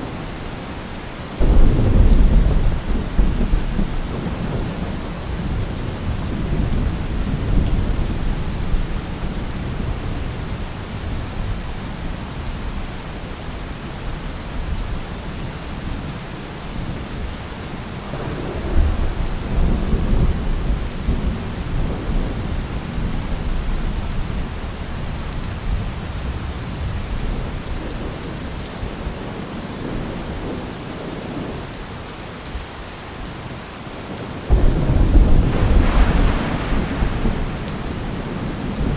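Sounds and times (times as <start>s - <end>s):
heavy rain hissing: 0.0s - 38.9s
rolling thunder: 1.4s - 10.2s, 18.1s - 24.0s, 34.5s - 38.9s.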